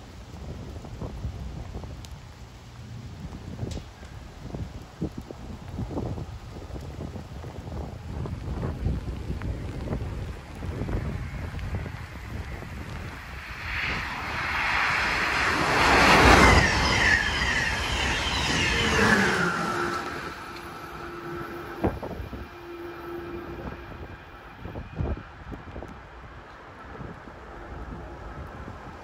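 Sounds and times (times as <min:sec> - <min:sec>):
wind and rain: 0:00.0 - 0:29.0
train wheels rushing on rail: 0:06.2 - 0:29.0
high electric whine: 0:10.6 - 0:25.2.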